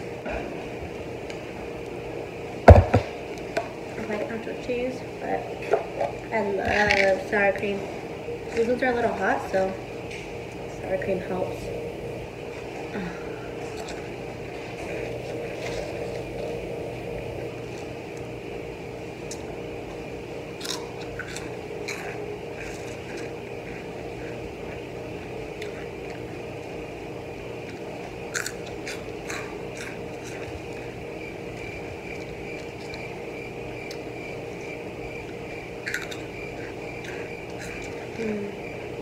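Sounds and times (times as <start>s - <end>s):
steady background hum: 0.0s - 39.0s
chewing and crunching snacks: 13.5s - 16.6s, 19.2s - 39.0s.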